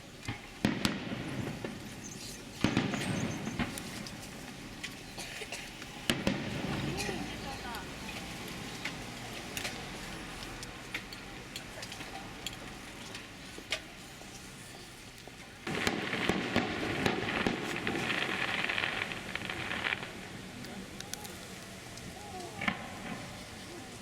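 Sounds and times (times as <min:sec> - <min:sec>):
fireworks crackling: 0:00.0 - 0:24.0
firework pops: 0:00.2 - 0:09.8, 0:15.6 - 0:24.0.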